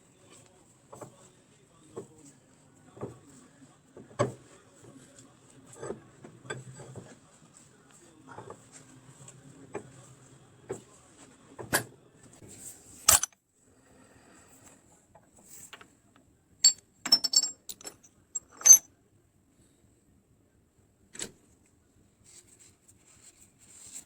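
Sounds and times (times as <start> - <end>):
small metal parts clinking: 13.1 - 13.4, 16.6 - 18.8.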